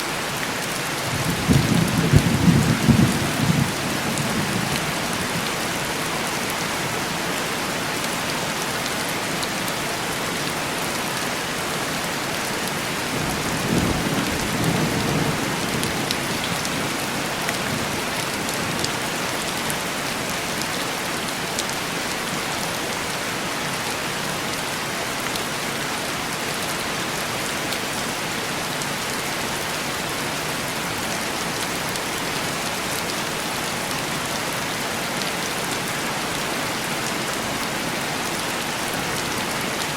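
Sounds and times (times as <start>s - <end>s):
heavy rain on a window: 0.0s - 39.9s.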